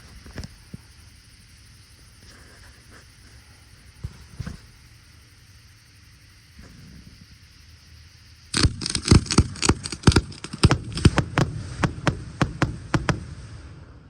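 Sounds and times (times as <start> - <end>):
high crackling hiss: 0.0 - 14.0
fireworks bangs: 8.6 - 14.0.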